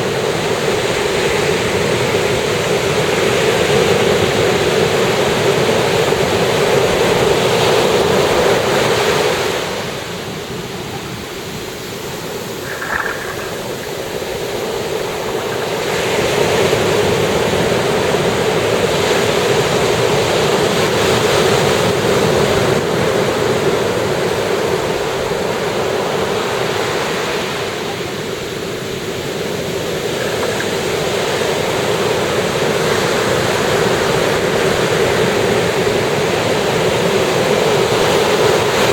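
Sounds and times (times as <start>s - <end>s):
ocean surf breaking: 11.8s - 18.9s.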